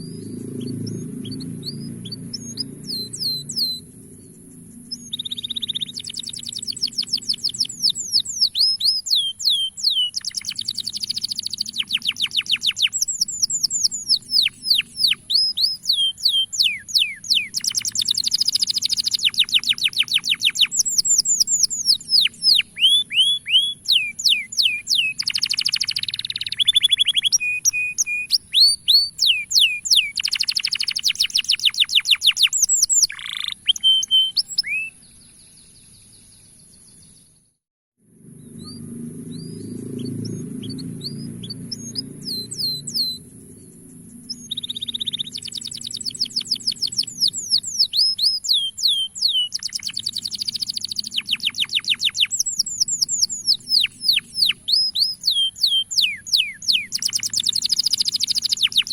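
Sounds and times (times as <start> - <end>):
canary singing trills: 0.0 - 37.4, 38.3 - 58.9.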